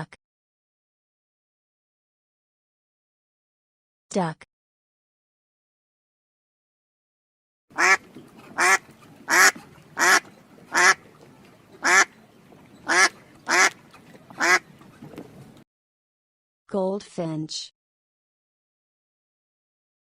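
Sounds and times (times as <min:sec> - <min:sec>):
duck quacking: 0:07.7 - 0:11.0, 0:11.8 - 0:12.1, 0:12.8 - 0:14.7.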